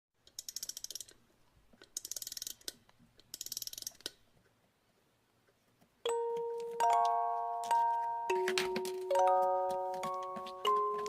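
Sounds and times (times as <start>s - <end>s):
music box winding ratchet clicks: 0.3s - 1.2s, 2.0s - 4.2s.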